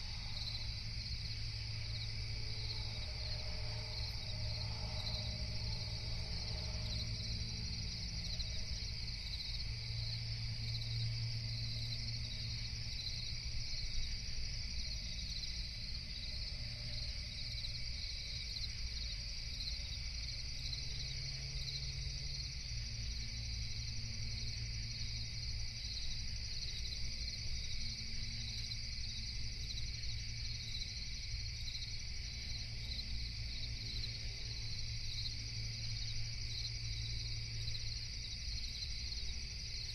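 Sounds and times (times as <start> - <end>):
steady low rumble: 0.0 - 13.0
crickets chirping: 0.0 - 39.9.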